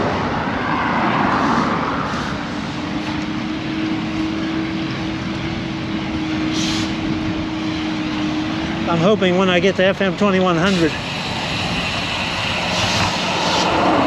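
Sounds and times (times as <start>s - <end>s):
steady hum: 1.2s - 14.0s
wind rushing over microphone: 10.7s - 14.0s.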